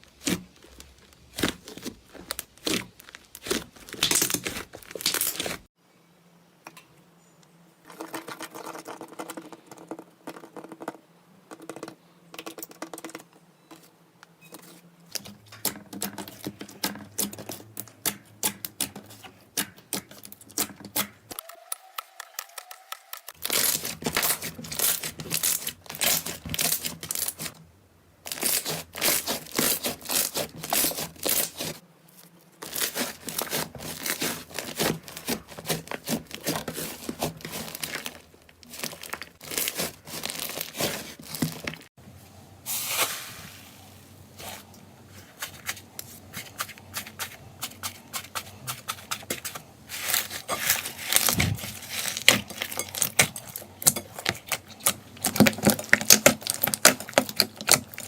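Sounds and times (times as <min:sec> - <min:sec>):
hands squishing slime: 0:00.0 - 0:05.7, 0:28.3 - 0:31.8, 0:32.6 - 0:41.9.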